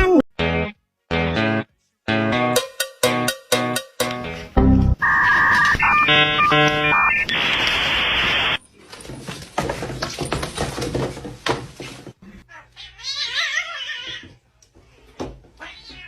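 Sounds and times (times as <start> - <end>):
electronic beeps: 4.7 - 8.6
cat meowing: 12.6 - 14.3, 15.6 - 16.0.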